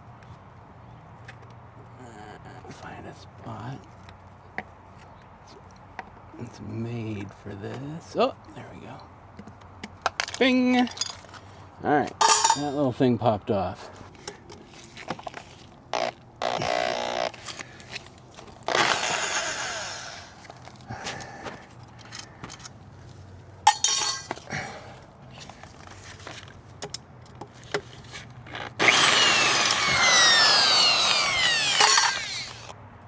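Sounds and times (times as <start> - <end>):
hand tool scraping and rattling: 12.2 - 12.8, 23.7 - 24.5, 27.6 - 32.7
power tool whine: 16.0 - 17.6, 18.7 - 20.5, 28.8 - 32.7.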